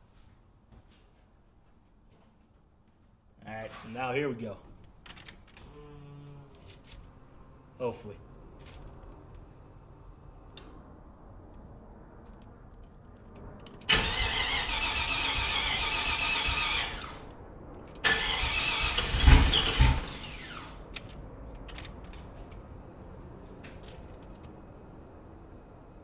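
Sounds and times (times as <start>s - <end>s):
car engine idling: 5.6s - 26.0s
car engine firing: 13.7s - 24.6s
starter motor cranking: 13.9s - 17.3s, 18.0s - 20.8s.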